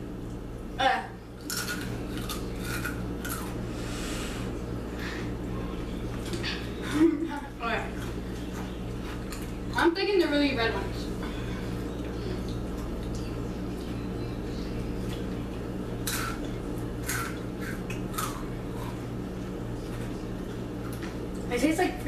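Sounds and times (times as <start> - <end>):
chips being bitten and chewed: 1.4 - 3.6, 16.0 - 19.0.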